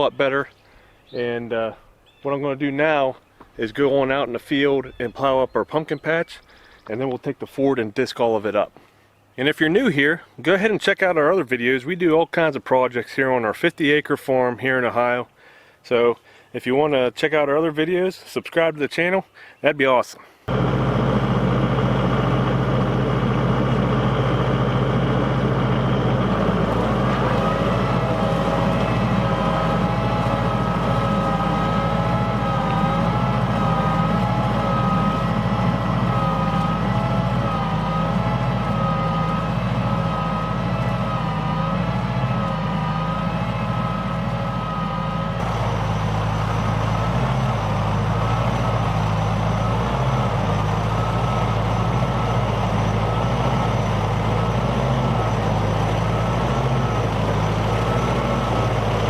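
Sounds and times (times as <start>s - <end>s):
tractor diesel engine under load: 0.0s - 8.7s, 20.4s - 59.0s
wavering whine: 20.5s - 59.0s.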